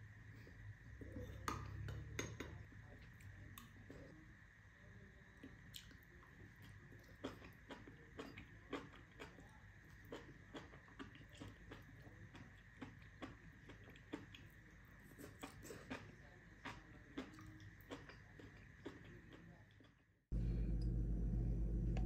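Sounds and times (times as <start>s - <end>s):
faint steady hum: 0.0s - 22.0s
chewing food: 5.4s - 20.0s.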